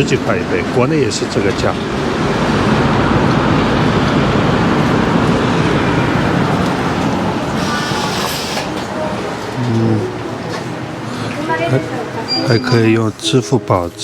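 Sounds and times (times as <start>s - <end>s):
train passing with wheel noise: 0.0s - 14.0s
high squeal: 4.8s - 9.1s, 12.2s - 13.9s.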